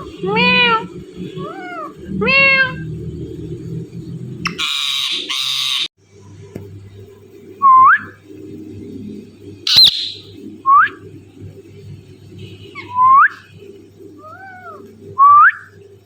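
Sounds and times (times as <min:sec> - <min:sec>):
parakeet whistled calls: 0:04.4 - 0:05.9, 0:09.7 - 0:10.9.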